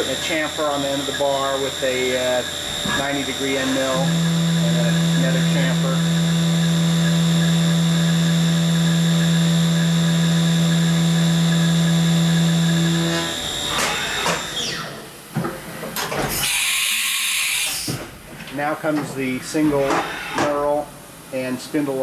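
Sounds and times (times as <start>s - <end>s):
milling machine spindle whine: 0.0s - 15.0s.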